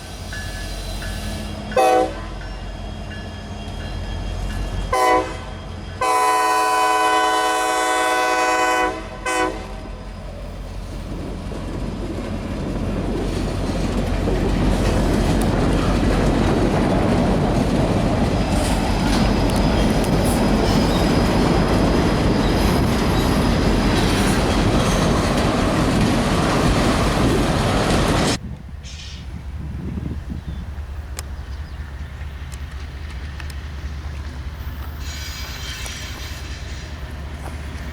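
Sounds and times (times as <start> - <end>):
train wheels rushing on rail: 0.0 - 37.9
train horn blasts: 1.1 - 2.5, 4.8 - 10.0.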